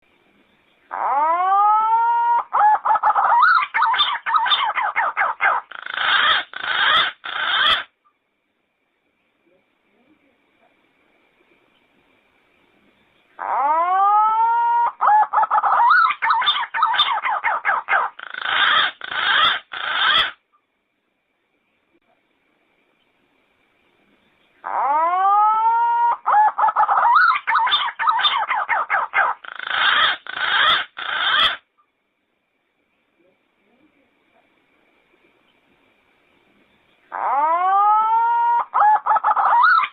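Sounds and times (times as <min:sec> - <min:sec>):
pigeon whistling song: 0:37.3 - 0:39.9.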